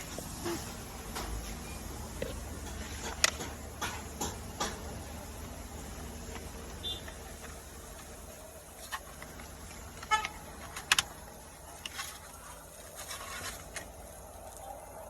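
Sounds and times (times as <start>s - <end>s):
sharp clicks and knocks: 2.1s - 5.5s
rustling: 6.1s - 14.8s.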